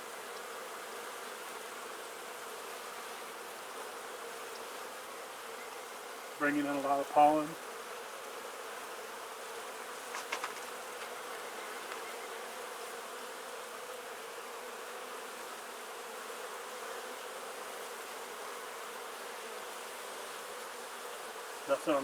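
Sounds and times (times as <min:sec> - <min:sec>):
honeybees humming: 0:00.0 - 0:22.0.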